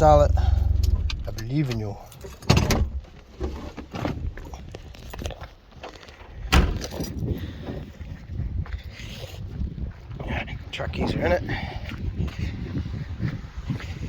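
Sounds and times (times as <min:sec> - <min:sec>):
car door slamming shut: 0:06.5 - 0:07.0.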